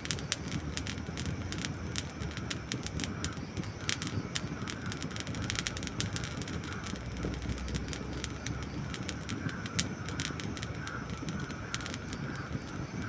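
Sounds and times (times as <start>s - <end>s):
campfire crackling and popping: 0.0s - 13.0s
low rush of flames: 0.0s - 13.0s.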